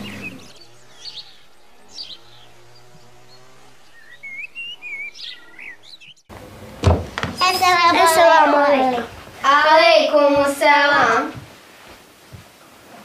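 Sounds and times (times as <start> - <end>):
small birds chirping and twittering: 0.0 - 6.3.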